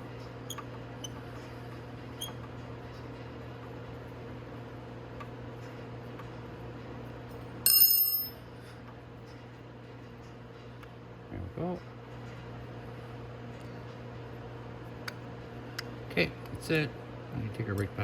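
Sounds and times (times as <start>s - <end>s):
metal tools clinking: 7.7s - 8.3s
ringing metal clang: 7.7s - 8.4s.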